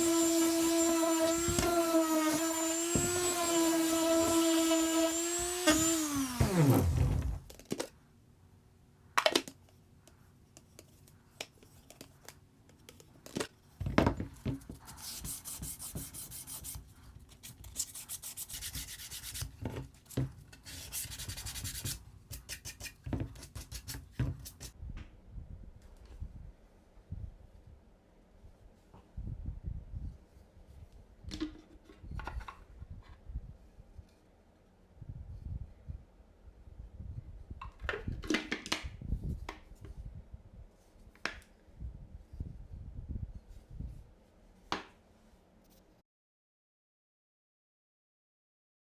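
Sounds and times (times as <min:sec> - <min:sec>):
power tool motor running: 0:00.0 - 0:07.4.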